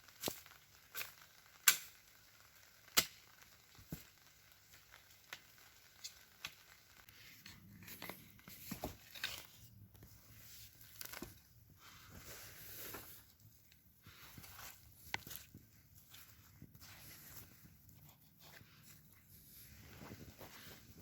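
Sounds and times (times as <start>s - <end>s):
rustling and crunching: 5.0s - 21.0s.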